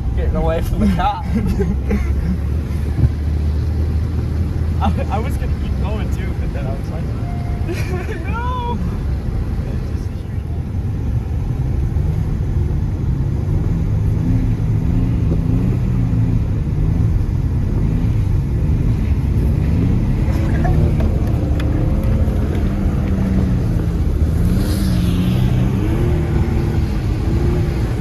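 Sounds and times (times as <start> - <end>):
pickup truck engine running: 16.1 - 28.0.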